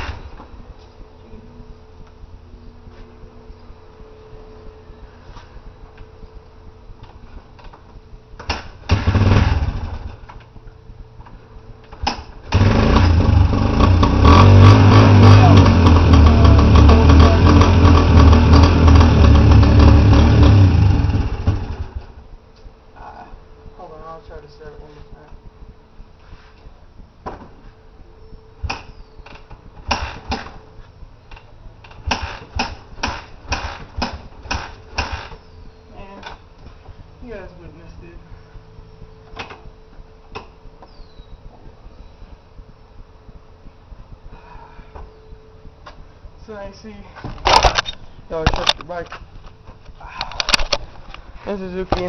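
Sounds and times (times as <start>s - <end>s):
dirt bike engine starting: 8.5s - 10.3s, 12.1s - 22.2s, 29.8s - 30.6s, 32.0s - 35.5s.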